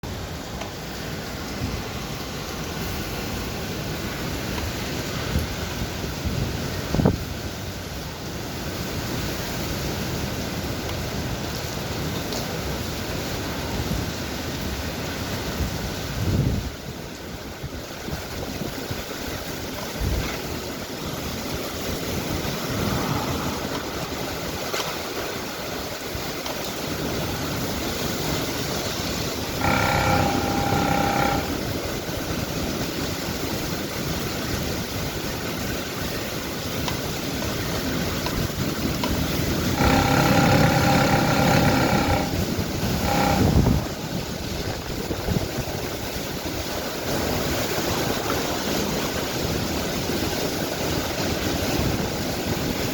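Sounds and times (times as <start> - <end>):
heavy rain and running water: 0.0 - 52.9
steady pitched tone: 29.6 - 31.6, 39.8 - 43.8.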